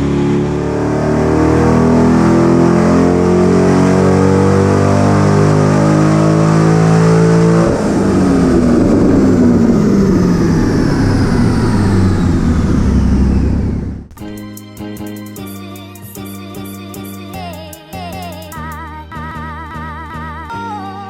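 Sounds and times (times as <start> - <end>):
car engine revving high: 0.0 - 14.2.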